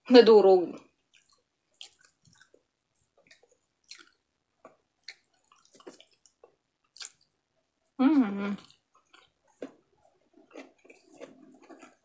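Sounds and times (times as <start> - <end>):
wet mouth smacks while chewing: 1.1 - 2.6, 3.2 - 7.3.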